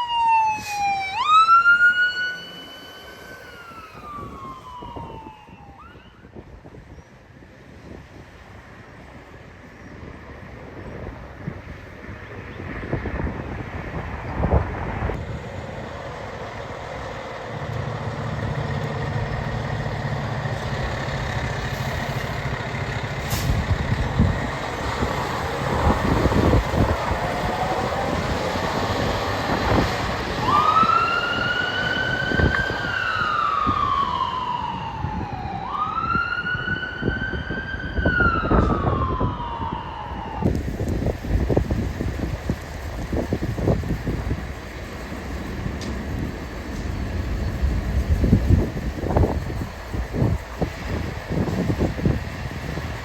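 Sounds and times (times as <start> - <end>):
siren wailing: 0.0 - 6.4, 24.2 - 40.6
vehicle engine and road noise: 0.0 - 53.0.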